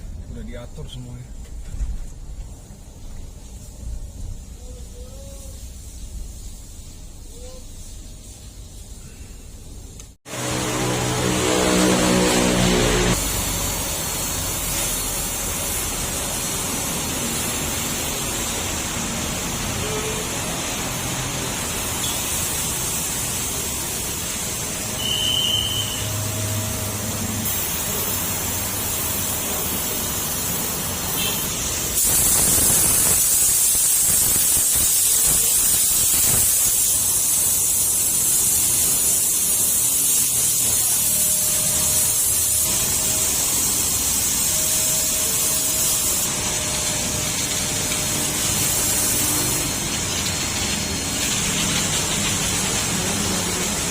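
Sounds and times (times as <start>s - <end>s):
high-pressure water spray on car: 10.3s - 53.9s.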